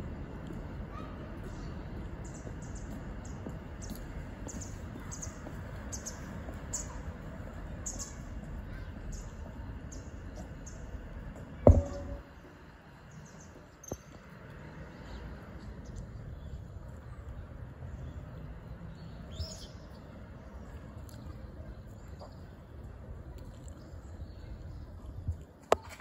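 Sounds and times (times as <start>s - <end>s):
phone being knocked thump: 11.7s - 12.3s.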